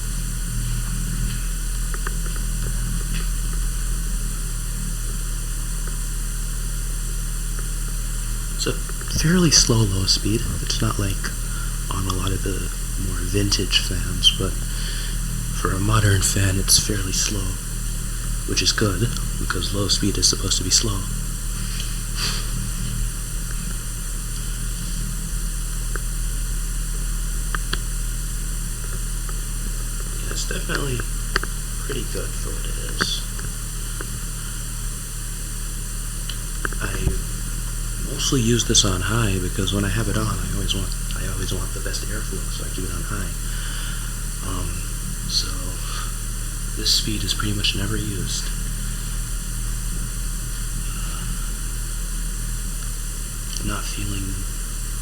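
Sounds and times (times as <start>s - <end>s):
faint ticks: 0.0s - 38.8s
ceiling fan humming: 0.0s - 55.0s.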